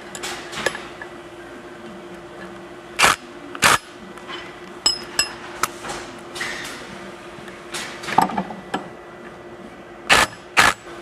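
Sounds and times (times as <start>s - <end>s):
metal tools knocking and clinking: 4.3s - 5.4s.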